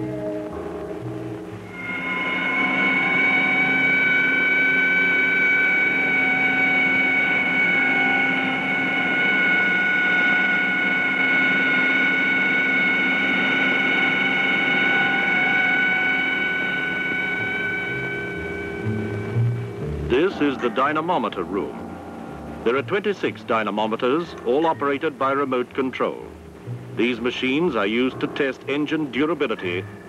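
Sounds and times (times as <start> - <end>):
engine whining at high speed: 0.0 - 23.1.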